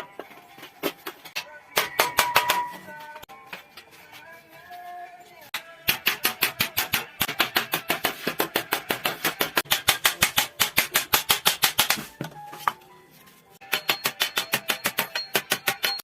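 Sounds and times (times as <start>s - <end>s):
hammer tapping sheet metal: 1.8s - 2.8s, 5.8s - 12.1s.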